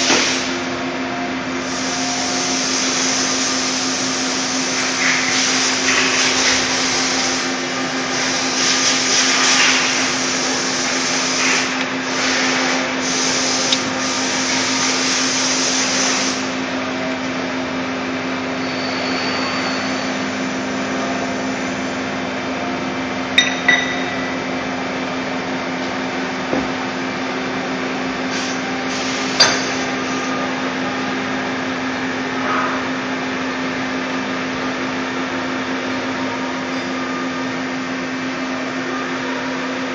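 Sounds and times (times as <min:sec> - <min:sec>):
lathe machine hum: 0:00.0 - 0:39.9.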